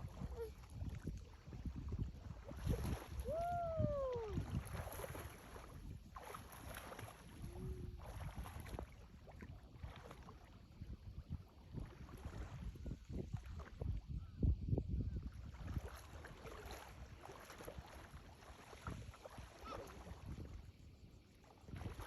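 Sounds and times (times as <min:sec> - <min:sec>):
water splashing: 0:00.0 - 0:10.6, 0:15.5 - 0:20.5
wind buffeting microphone: 0:00.0 - 0:22.0.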